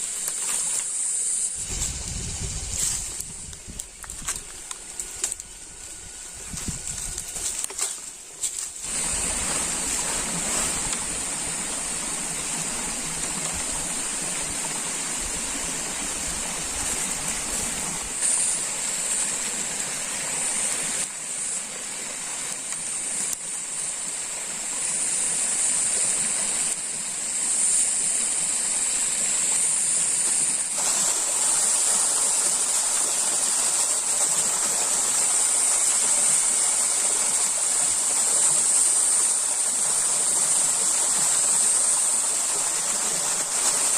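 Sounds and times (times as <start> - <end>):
stream water rushing: 7.5 - 43.9.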